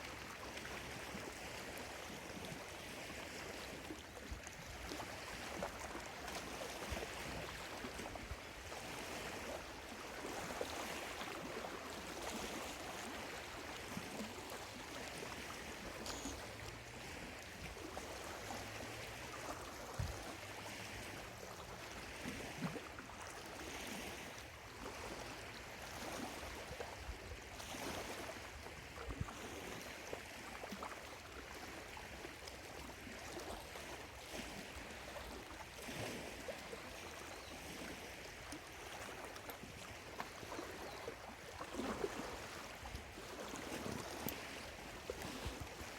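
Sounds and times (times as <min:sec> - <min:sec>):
small waves lapping at shoreline: 0:00.0 - 0:45.9.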